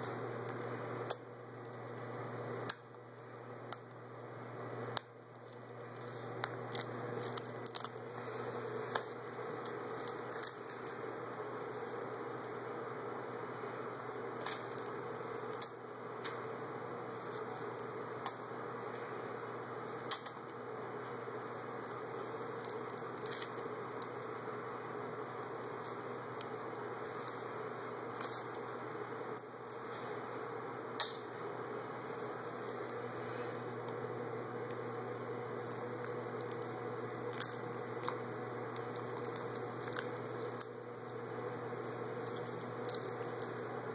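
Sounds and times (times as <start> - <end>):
steady background hum: 0.0 - 43.9
seaweed crackling as chewed: 4.9 - 12.7, 14.4 - 16.4, 17.0 - 19.1, 21.0 - 30.1, 32.0 - 43.9.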